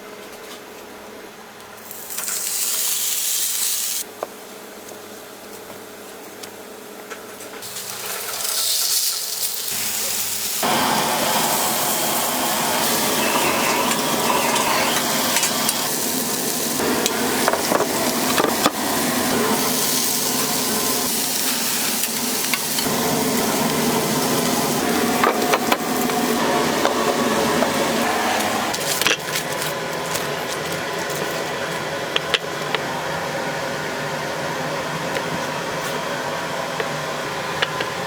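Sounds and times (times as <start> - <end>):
food sizzling in a pan: 1.8 - 4.0, 7.6 - 28.7
utensils stirring and scraping: 7.7 - 31.5.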